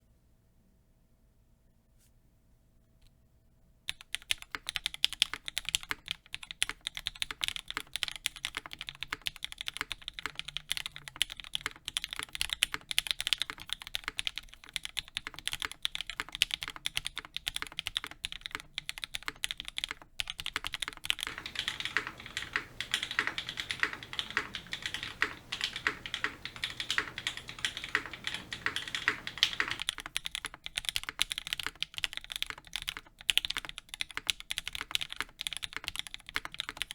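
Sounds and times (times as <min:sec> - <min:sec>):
mechanical keyboard key clacks: 0:19.2 - 0:36.9.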